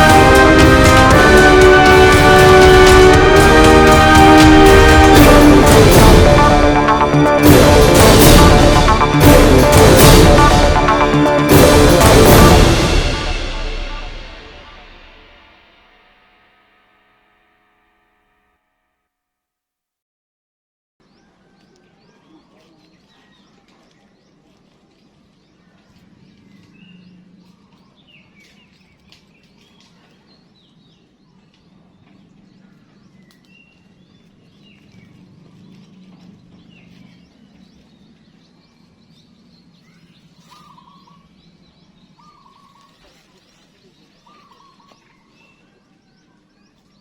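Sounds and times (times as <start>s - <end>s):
birds chirping: 21.1s - 47.0s.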